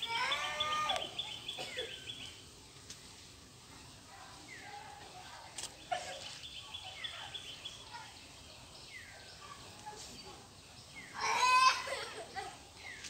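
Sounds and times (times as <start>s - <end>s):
loud harsh bird call: 0.0s - 2.3s.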